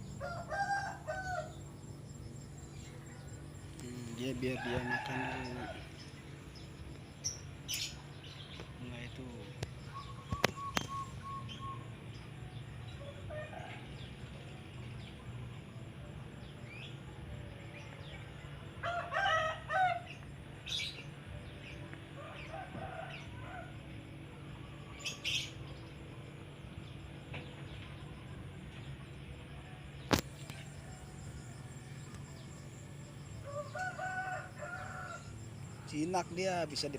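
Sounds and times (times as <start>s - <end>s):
steady low hum: 0.0s - 36.9s
rooster crowing: 0.1s - 1.7s, 4.2s - 6.1s, 18.8s - 20.2s, 22.2s - 23.8s, 33.4s - 35.5s
high bird chirps: 9.8s - 12.2s.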